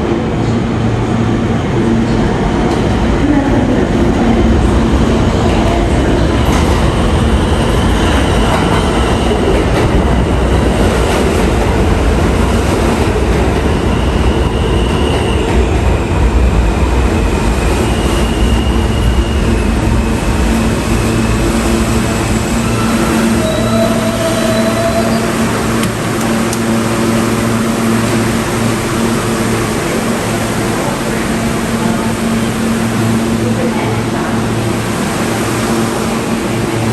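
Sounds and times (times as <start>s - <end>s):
subway train rumbling on rails: 0.0s - 36.9s
high wheel squeal: 17.8s - 25.7s.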